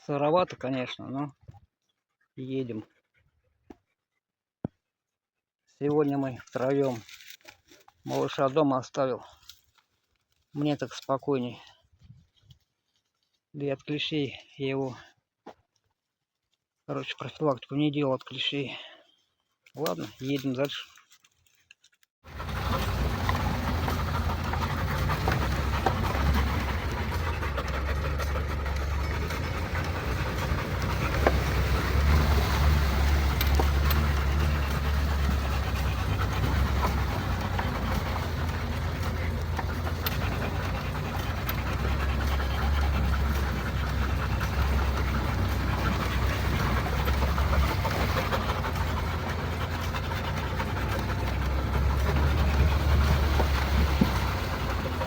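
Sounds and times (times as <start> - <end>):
dog panting: 22.3 - 55.0
vehicle engine droning: 22.3 - 55.0.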